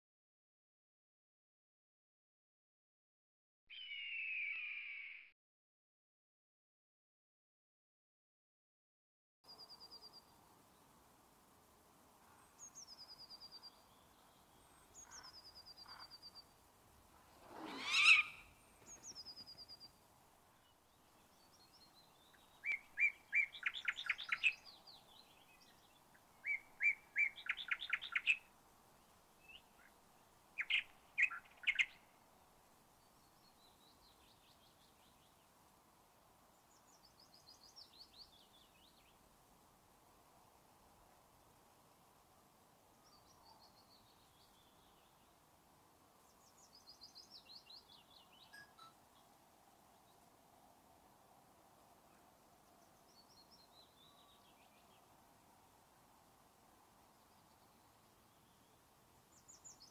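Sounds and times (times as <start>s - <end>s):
high falling bird trills: 3.7s - 5.3s, 17.3s - 19.7s
loud rising bird call: 3.7s - 5.3s, 17.4s - 19.0s.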